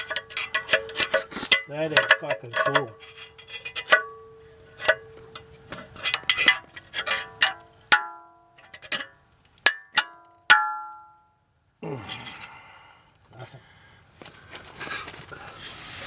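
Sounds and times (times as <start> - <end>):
hand tools clinking on metal: 0.0 - 10.9.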